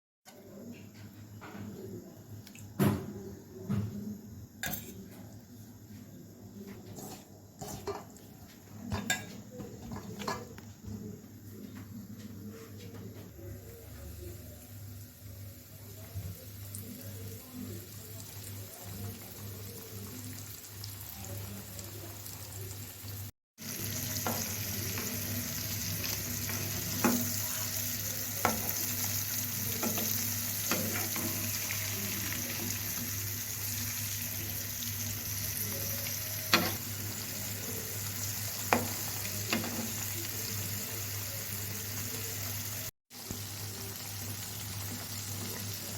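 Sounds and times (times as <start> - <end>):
chicken frying in hot oil: 13.6 - 45.9.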